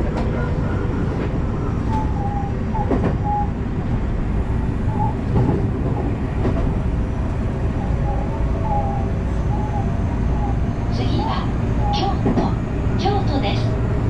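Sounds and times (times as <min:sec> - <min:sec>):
train wheels rumbling on track: 0:00.0 - 0:14.0
train wheel knocks: 0:02.8 - 0:03.2, 0:05.3 - 0:06.8, 0:12.1 - 0:12.6.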